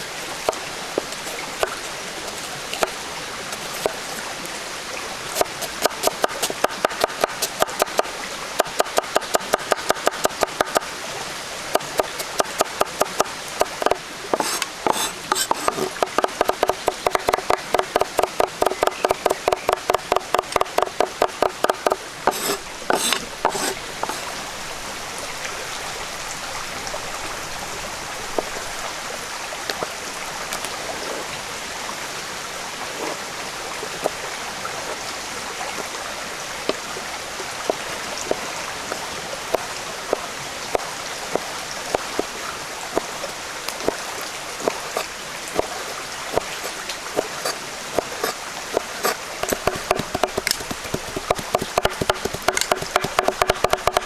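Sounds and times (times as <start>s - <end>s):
running water: 0.0s - 54.0s
knife chopping on wooden board: 3.6s - 4.0s, 5.4s - 10.8s, 11.7s - 24.4s, 44.6s - 54.0s.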